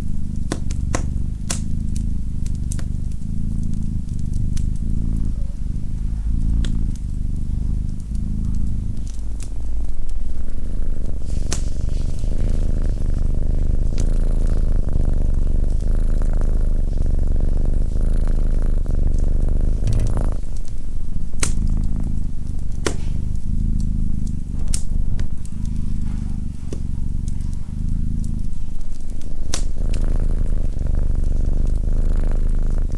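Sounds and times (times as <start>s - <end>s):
cat purring: 0.0s - 32.9s
wood fire crackling: 0.0s - 32.9s.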